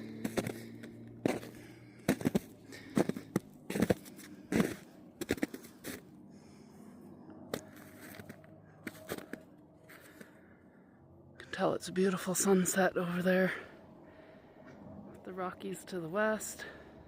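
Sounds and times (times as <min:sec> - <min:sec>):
footsteps walking: 0:00.0 - 0:06.2, 0:07.5 - 0:10.3.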